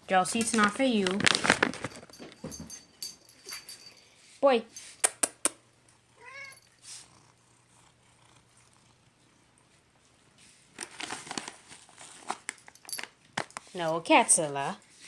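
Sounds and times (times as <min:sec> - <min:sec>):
cat meowing: 0:06.2 - 0:06.7.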